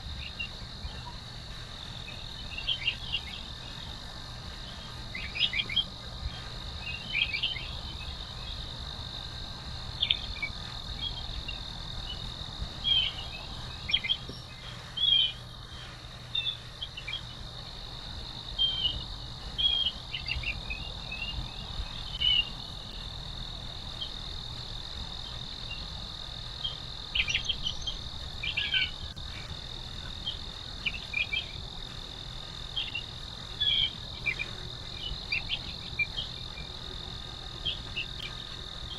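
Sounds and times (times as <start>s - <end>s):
insects trilling: 0.0s - 38.9s
bird chirps: 1.8s - 4.0s, 4.6s - 8.6s, 10.0s - 17.4s, 18.5s - 23.1s, 26.6s - 29.5s, 30.1s - 31.6s, 32.7s - 36.7s.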